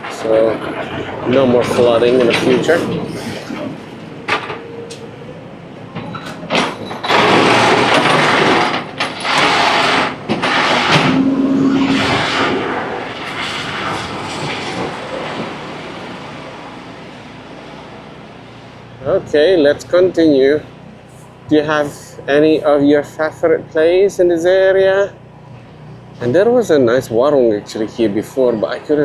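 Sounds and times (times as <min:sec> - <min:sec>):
traffic noise: 0:00.0 - 0:29.0
wind rushing: 0:10.5 - 0:16.5
steady low tone: 0:10.9 - 0:13.2.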